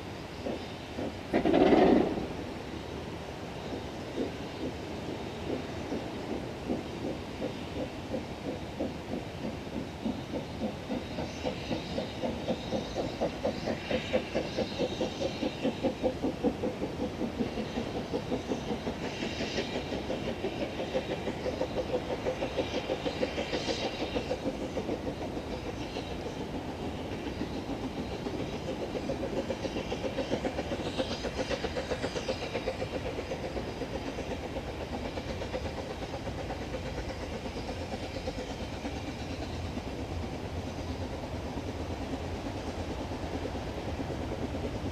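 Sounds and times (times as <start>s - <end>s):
steam hiss: 0.0s - 44.9s
steam locomotive chuffing: 0.0s - 44.9s.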